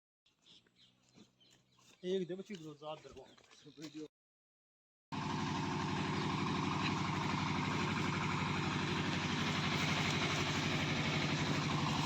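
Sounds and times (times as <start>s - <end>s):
engine running steadily: 5.1s - 12.0s.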